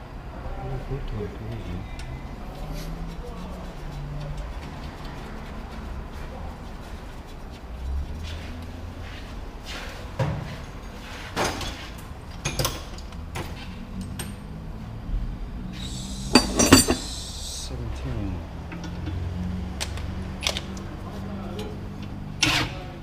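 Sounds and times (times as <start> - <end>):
tools and metal parts clattering: 16.3 - 17.2.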